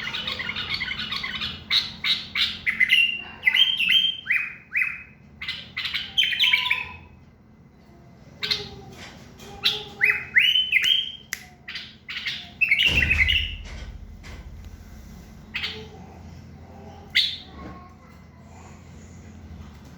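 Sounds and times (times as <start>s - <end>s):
bird singing whistled phrases: 10.0s - 11.6s
low rumble: 12.9s - 16.4s.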